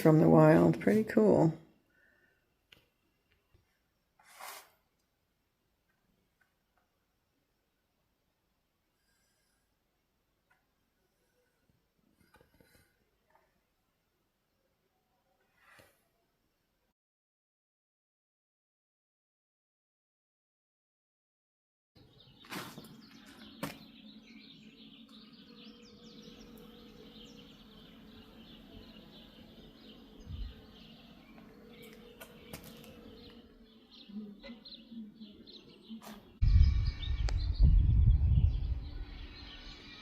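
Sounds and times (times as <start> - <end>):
small birds chirping: 22.0 - 40.0
low rumble on microphone: 36.4 - 39.7.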